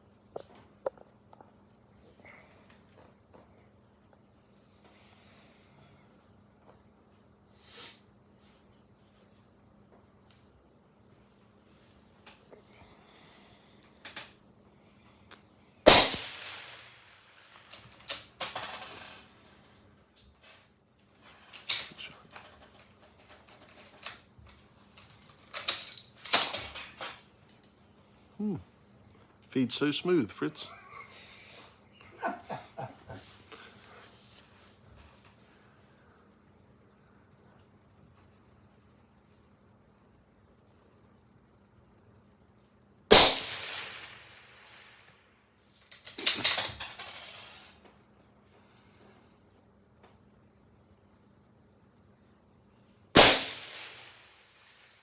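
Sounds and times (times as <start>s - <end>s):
rifle shot: 15.9s - 17.6s, 43.1s - 45.0s, 53.2s - 54.8s.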